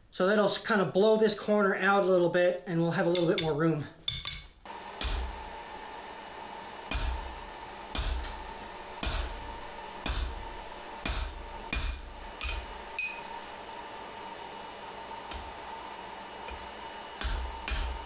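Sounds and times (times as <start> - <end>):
hammer striking steel on anvil: 3.1 - 5.6, 6.9 - 13.4, 16.5 - 18.0.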